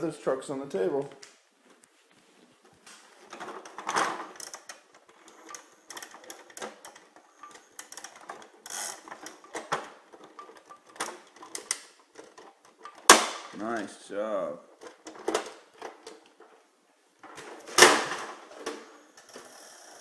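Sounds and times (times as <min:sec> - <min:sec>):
plastic toy clicks and rattles: 0:03.2 - 0:13.3, 0:14.8 - 0:16.4.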